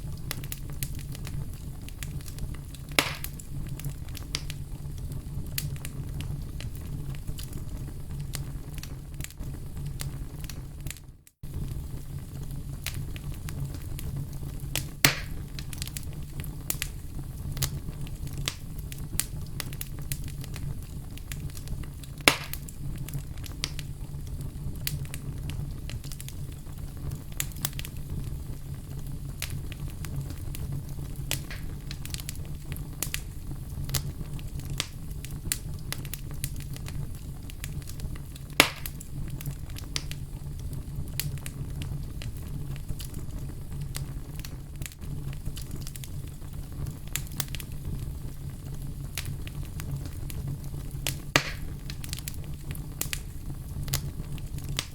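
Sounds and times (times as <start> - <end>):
loud fire pops: 0.0 - 54.9
wood fire crackling: 0.0 - 54.9.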